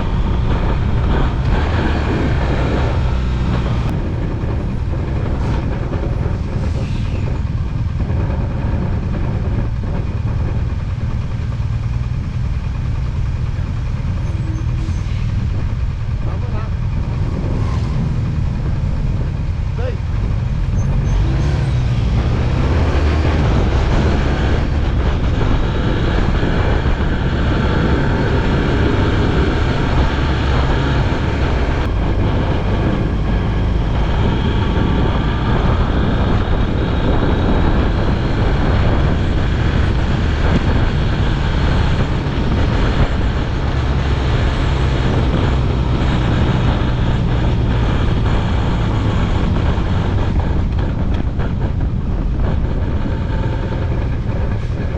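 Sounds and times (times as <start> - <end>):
motorcycle engine running: 0.0 - 54.9
wind and road noise: 0.0 - 54.9.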